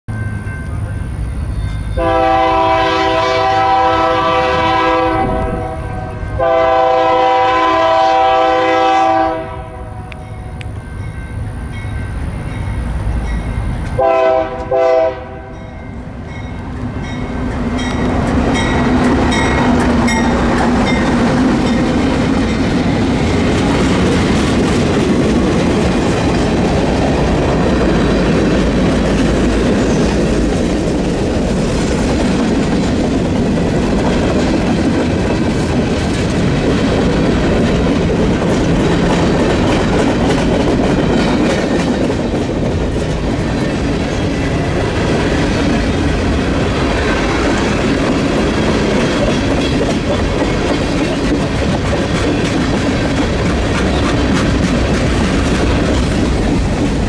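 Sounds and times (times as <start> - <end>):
diesel locomotive engine drone: 0.1 - 57.0
locomotive air horn: 2.0 - 10.2, 14.0 - 15.6
train wheels clicking over rail joints: 16.2 - 57.0.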